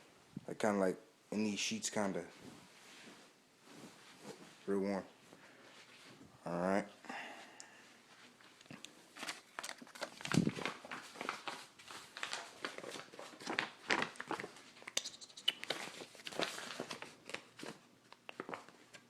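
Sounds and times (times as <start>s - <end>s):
rustling and crinkling: 2.2s - 6.3s, 8.0s - 15.0s, 15.6s - 19.0s.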